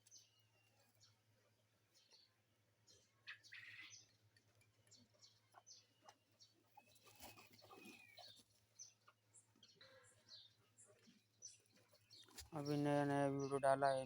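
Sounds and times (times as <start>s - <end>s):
faint bird chirps: 1.9s - 4.2s.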